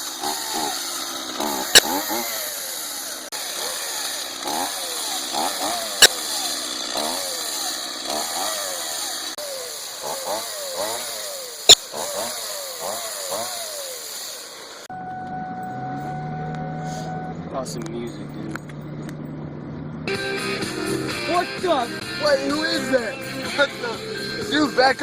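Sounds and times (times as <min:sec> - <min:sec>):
chainsaw engine revving: 0:00.0 - 0:14.9
sharp loud cracks: 0:05.4 - 0:07.4.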